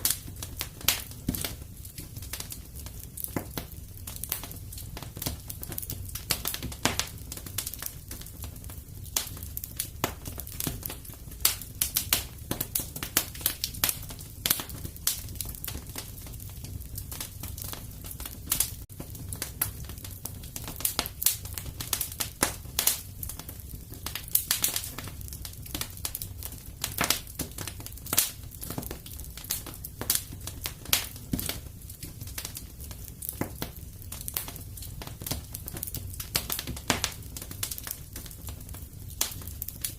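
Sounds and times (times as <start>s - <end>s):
low rumble of burning: 0.0s - 39.9s
wood fire crackling and popping: 0.0s - 39.9s.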